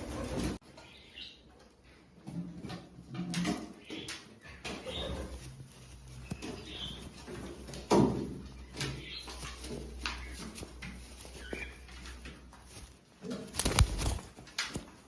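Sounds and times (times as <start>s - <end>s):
pigeons calling softly: 3.2s - 15.0s.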